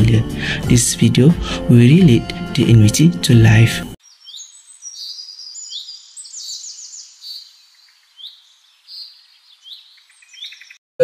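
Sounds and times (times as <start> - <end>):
birds singing: 4.0 - 10.8.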